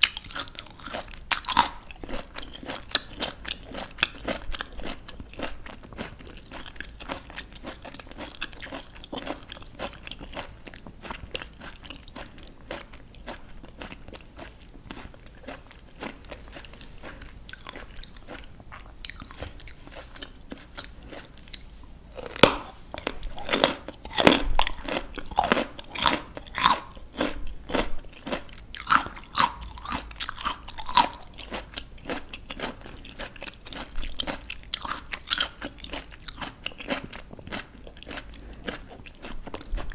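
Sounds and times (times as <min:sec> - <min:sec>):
chewing crisp vegetables: 0:00.0 - 0:39.9
loud crisp bite: 0:22.2 - 0:24.4.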